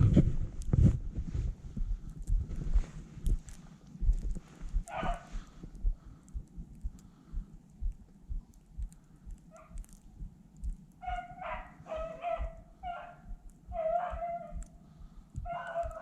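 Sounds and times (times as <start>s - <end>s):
footsteps in deep snow: 0.0s - 5.6s
beagle baying: 4.8s - 5.5s, 9.5s - 9.8s, 11.0s - 14.8s, 15.4s - 16.0s.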